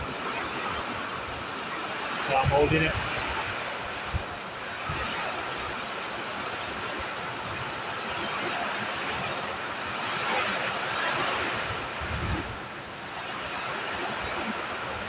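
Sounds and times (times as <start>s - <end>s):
wind buffeting microphone: 0.0s - 8.3s, 11.0s - 12.8s
windy storm rushing: 0.0s - 15.0s.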